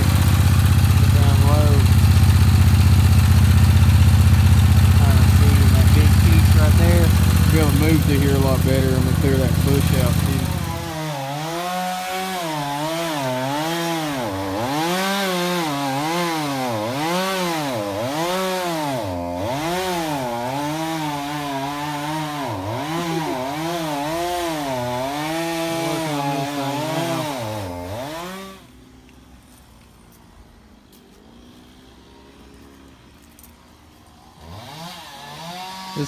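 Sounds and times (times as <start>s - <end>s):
stump grinder engine under load: 0.0s - 28.7s
cutter wheel grinding root: 0.0s - 28.8s, 34.4s - 36.0s.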